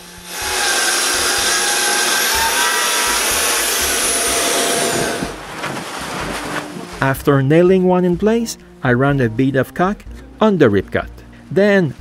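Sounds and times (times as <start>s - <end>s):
power saw cutting wood: 0.0s - 5.4s
saw blade whine: 0.0s - 5.4s.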